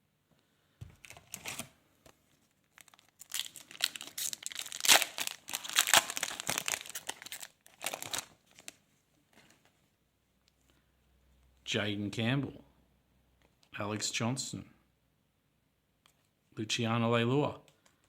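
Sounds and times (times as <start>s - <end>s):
wrapper tearing and crinkling: 2.7s - 8.8s.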